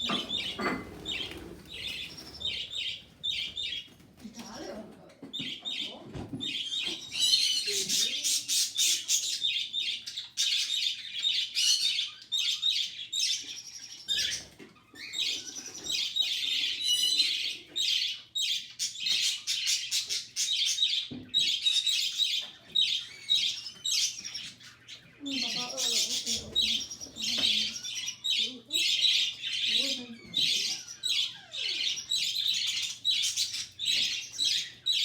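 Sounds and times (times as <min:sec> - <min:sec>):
budgerigar chick chirping: 0:00.0 - 0:03.9.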